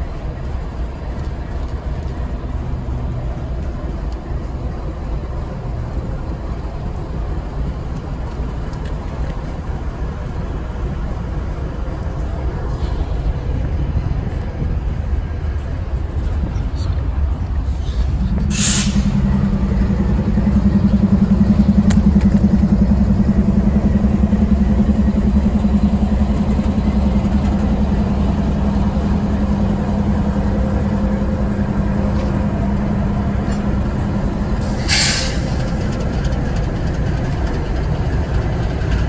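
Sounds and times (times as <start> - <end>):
train rumbling: 0.0 - 39.0
low droning tone: 12.2 - 38.9
air release hisses: 17.8 - 19.1, 34.6 - 35.4.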